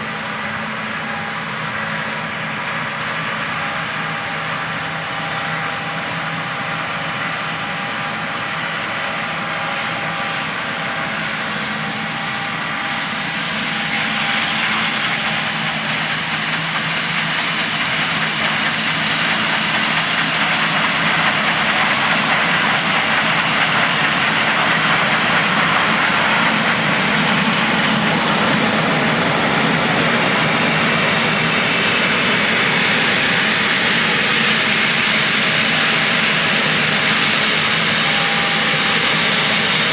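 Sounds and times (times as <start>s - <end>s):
combine harvester engine hum: 0.0s - 39.9s.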